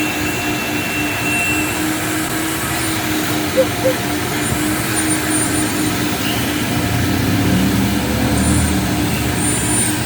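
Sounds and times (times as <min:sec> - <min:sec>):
brief high whistles: 0:03.6 - 0:04.0.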